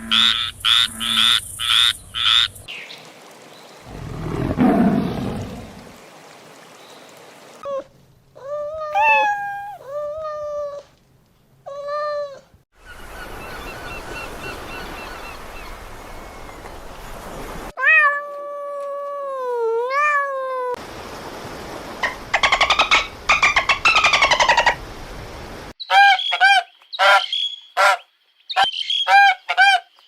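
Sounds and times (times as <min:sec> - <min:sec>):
cat meowing: 0:08.6 - 0:10.4, 0:17.8 - 0:20.8.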